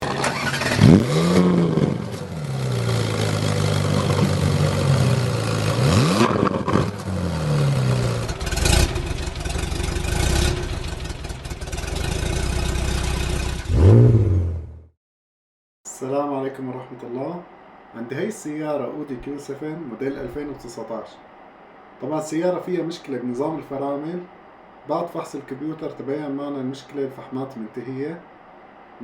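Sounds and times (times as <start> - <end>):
car engine idling and revving: 0.0 - 14.8.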